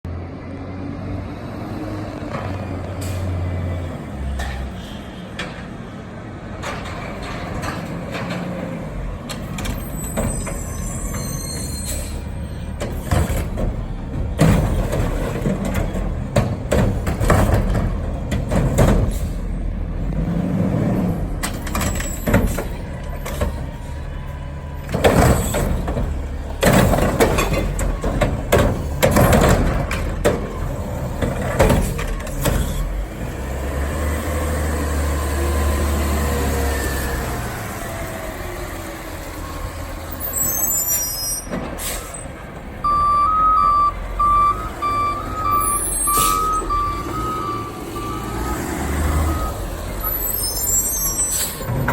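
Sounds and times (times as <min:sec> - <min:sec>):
garbage truck engine rumble: 0:00.1 - 0:51.9
loud clanks and bangs: 0:06.6 - 0:33.1
high squeal: 0:09.8 - 0:12.7, 0:40.1 - 0:42.3, 0:44.5 - 0:51.7.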